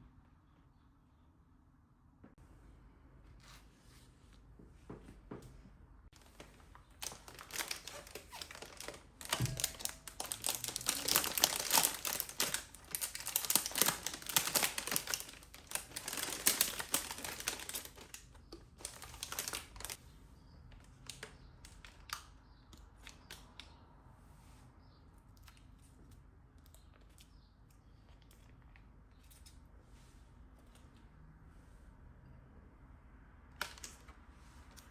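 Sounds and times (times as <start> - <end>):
kitchen rustling and clicking: 4.7 - 20.0.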